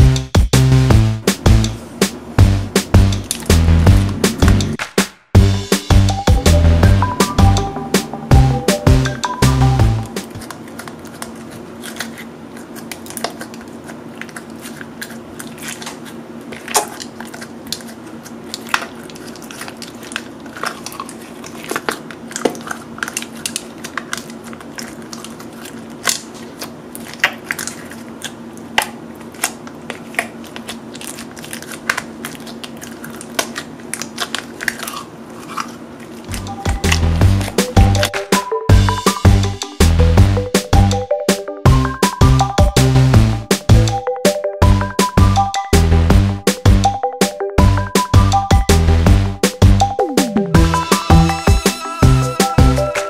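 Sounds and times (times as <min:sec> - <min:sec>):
sticky clicks and pops: 0:02.8 - 0:05.2.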